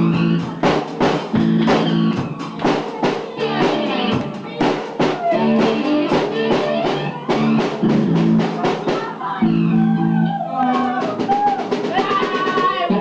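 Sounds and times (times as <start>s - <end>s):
drum hits: 0.0s - 9.2s
electric guitar chords: 1.2s - 2.5s, 3.2s - 4.5s, 5.2s - 8.6s.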